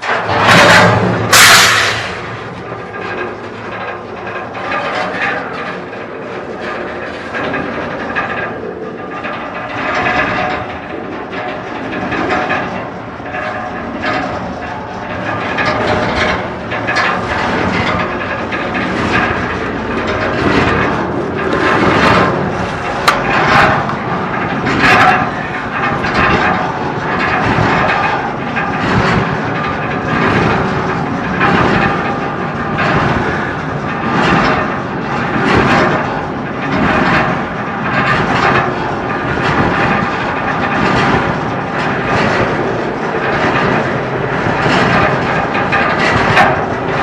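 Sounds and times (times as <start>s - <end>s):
freight train rumbling and rattling: 0.0s - 47.0s
sharp metal clank: 0.3s - 2.4s.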